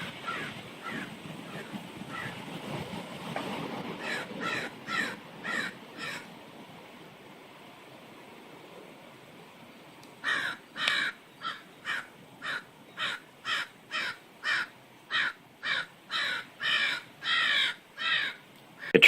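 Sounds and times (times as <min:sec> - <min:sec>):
crow cawing: 0:00.2 - 0:02.3, 0:04.0 - 0:06.3, 0:10.2 - 0:19.0.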